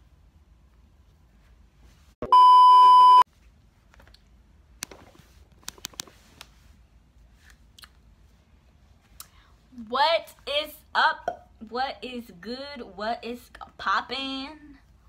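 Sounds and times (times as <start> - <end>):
electronic beep: 2.3 - 3.2.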